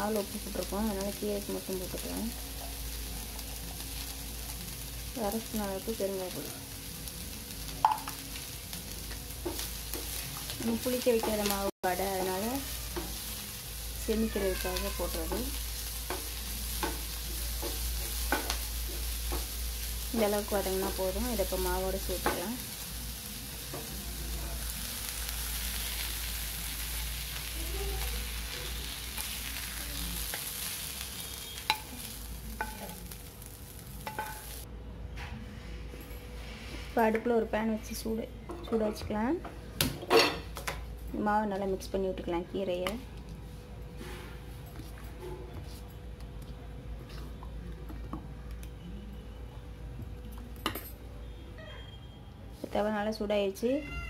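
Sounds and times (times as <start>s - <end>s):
food sizzling in hot oil: 0.0s - 34.7s.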